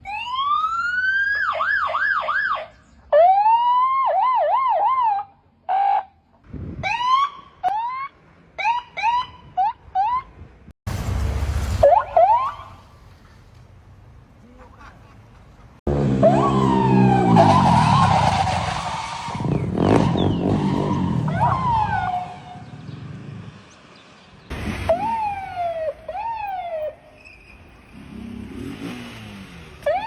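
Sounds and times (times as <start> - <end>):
electronic siren wail and warble: 15.9 - 23.4, 24.9 - 27.1, 29.8 - 30.0
short rising siren whoops: 16.0 - 22.9, 24.9 - 27.1.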